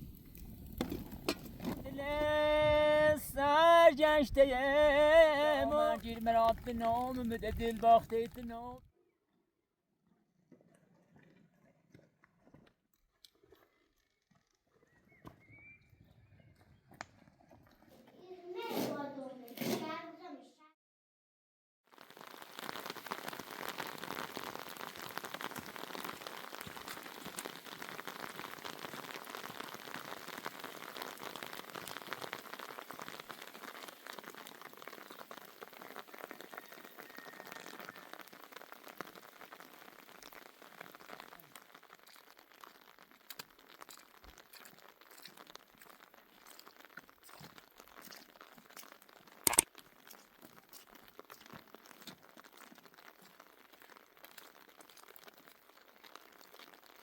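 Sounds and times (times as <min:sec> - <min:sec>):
rain pattering: 0:00.0 - 0:08.8, 0:21.9 - 0:57.0.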